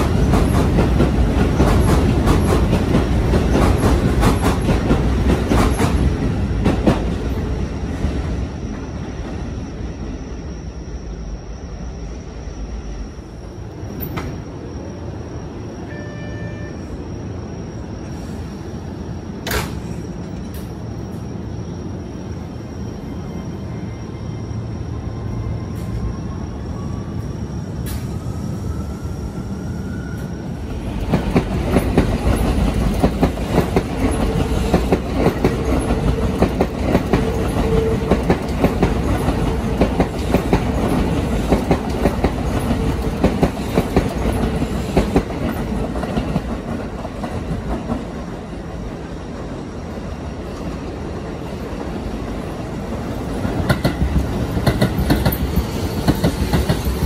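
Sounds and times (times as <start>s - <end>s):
train wheels clattering: 0.0s - 7.4s, 30.9s - 48.4s, 52.8s - 57.0s
train rumble and hum: 0.0s - 57.0s.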